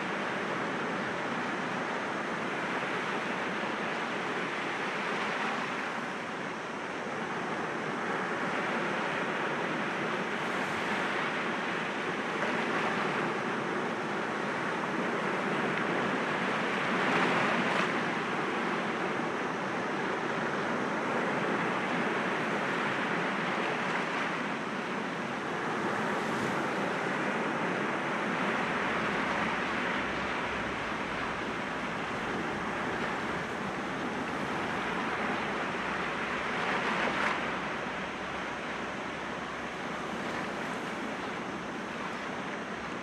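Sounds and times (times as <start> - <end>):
sea waves breaking on rocks: 28.2 - 42.2.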